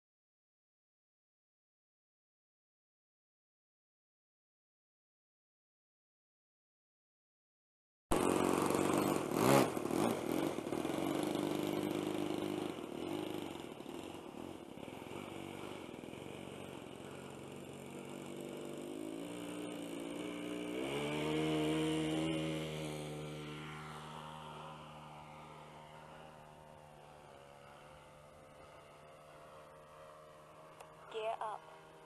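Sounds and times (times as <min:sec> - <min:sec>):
model plane engine running: 0:08.1 - 0:32.0.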